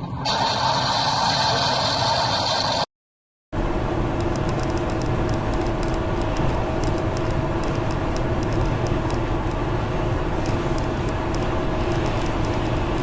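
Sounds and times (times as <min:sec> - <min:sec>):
road and engine noise: 0:03.6 - 0:13.0
light irregular ticking: 0:04.1 - 0:13.0.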